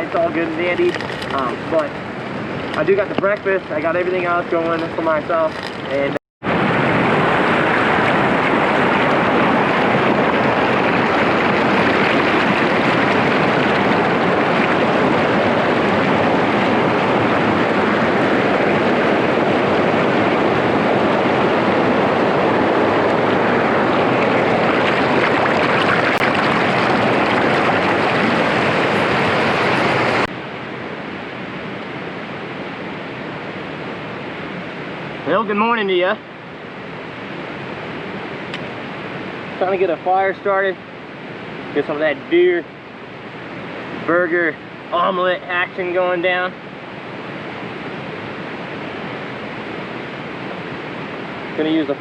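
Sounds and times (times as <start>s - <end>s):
wind and rain storm rushing: 0.0s - 52.0s.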